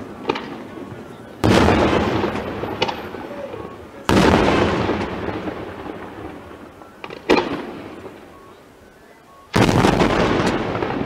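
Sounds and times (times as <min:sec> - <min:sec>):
rolling echo: 0:00.0 - 0:11.0
firework shells bursting: 0:01.4 - 0:08.4.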